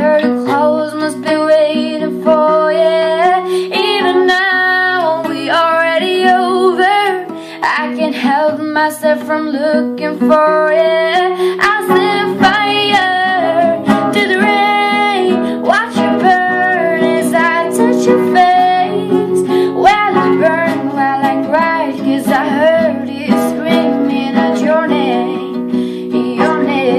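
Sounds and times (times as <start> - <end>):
strummed guitar: 0.0 - 26.9.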